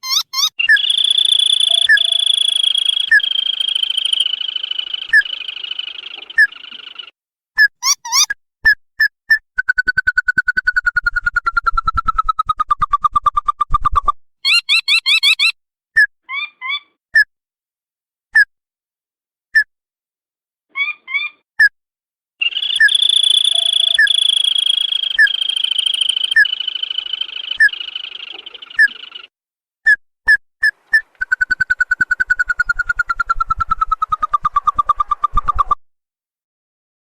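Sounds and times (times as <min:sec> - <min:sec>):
recorded crake calls: 0:00.0 - 0:08.4, 0:09.6 - 0:16.8, 0:22.4 - 0:29.3, 0:30.6 - 0:35.8.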